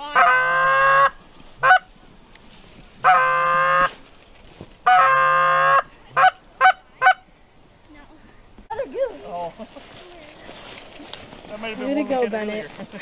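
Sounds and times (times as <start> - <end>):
goose clucking: 0.0 - 1.9, 3.0 - 4.0, 4.8 - 7.3
goose honking: 0.0 - 1.9, 3.0 - 4.0, 4.8 - 7.3.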